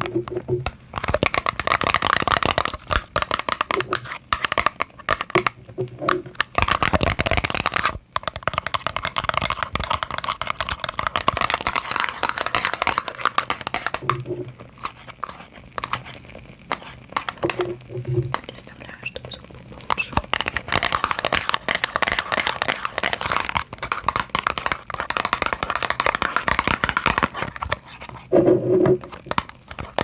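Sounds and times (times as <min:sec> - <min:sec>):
crinkly rustling: 0:09.5 - 0:30.0.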